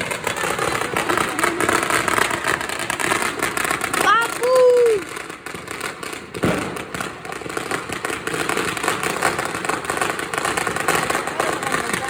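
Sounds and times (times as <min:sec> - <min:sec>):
firecrackers crackling: 0:00.0 - 0:12.0
heavy firework boom: 0:00.0 - 0:12.0.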